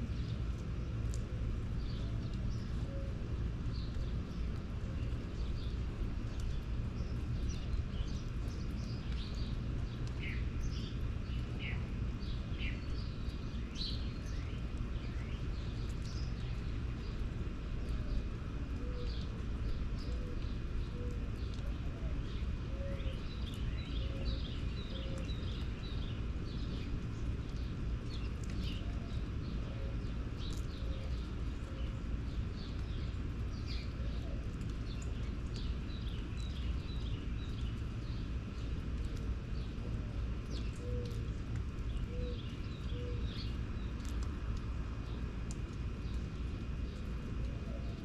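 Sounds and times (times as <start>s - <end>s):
low background rumble: 0.0s - 48.0s
small birds chirping: 0.0s - 48.0s.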